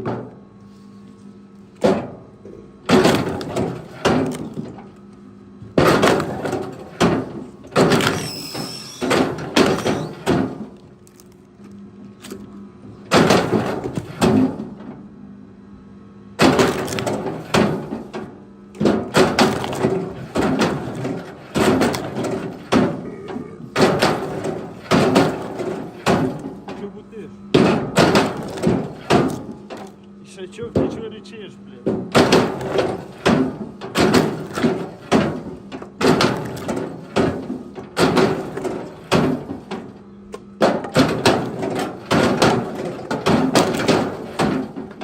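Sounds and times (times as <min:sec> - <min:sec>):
firewood clunking together: 0:02.9 - 0:05.0, 0:05.8 - 0:11.4, 0:13.1 - 0:14.8, 0:16.4 - 0:26.9, 0:27.6 - 0:30.0, 0:31.8 - 0:39.9, 0:40.6 - 0:45.0.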